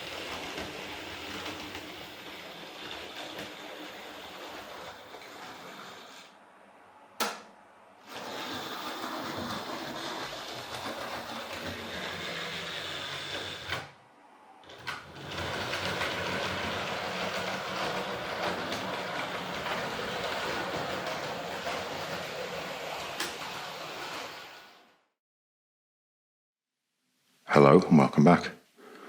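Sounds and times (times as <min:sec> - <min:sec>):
model train motor whirring: 0:00.0 - 0:06.4, 0:08.0 - 0:14.0, 0:14.6 - 0:25.0.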